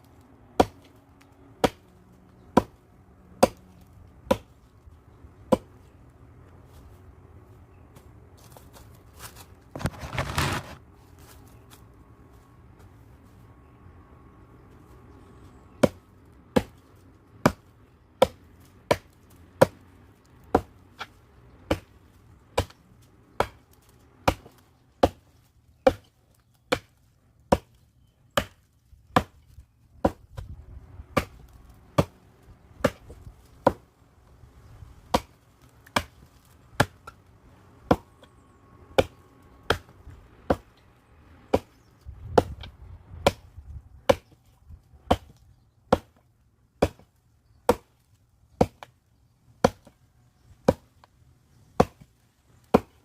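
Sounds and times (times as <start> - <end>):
axe chopping firewood: 0.5 - 4.7, 5.4 - 6.0, 9.7 - 10.8, 15.7 - 33.9, 35.0 - 37.2, 37.8 - 40.8, 41.5 - 49.0, 49.6 - 50.0, 50.6 - 51.1, 51.7 - 53.0.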